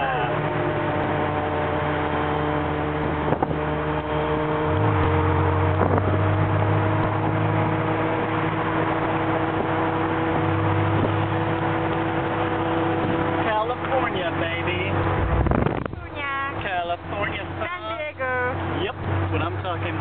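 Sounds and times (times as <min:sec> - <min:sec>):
car engine running: 0:00.0 - 0:20.0
wind noise: 0:03.0 - 0:03.8, 0:04.7 - 0:07.4, 0:08.2 - 0:13.4, 0:15.0 - 0:16.2.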